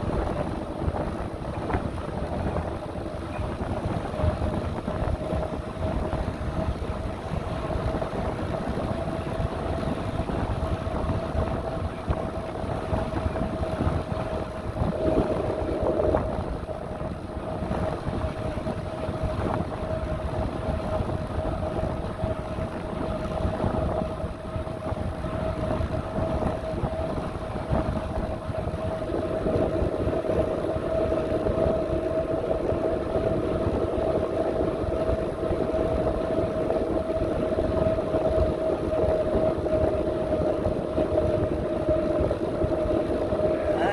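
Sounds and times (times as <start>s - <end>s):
steady whine: 0.0s - 43.9s
wind buffeting microphone: 0.0s - 43.9s.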